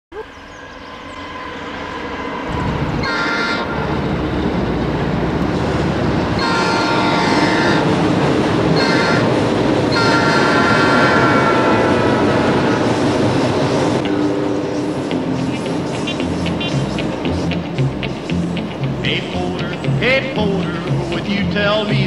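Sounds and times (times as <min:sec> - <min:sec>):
train rumbling on bridge: 0:00.2 - 0:22.0
locomotive horn blasts: 0:03.0 - 0:03.9, 0:06.4 - 0:07.8, 0:09.9 - 0:12.6.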